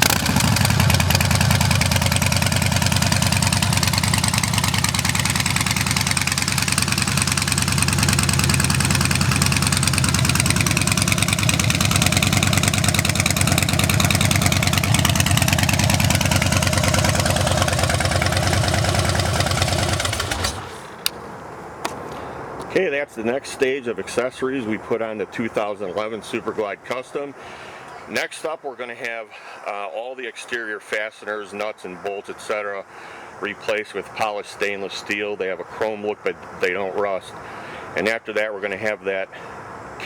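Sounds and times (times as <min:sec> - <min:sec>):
motorcycle engine idling: 0:00.0 - 0:21.1.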